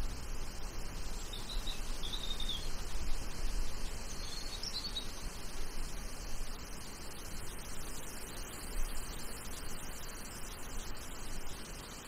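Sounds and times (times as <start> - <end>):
songbird twittering: 0.9 - 11.5.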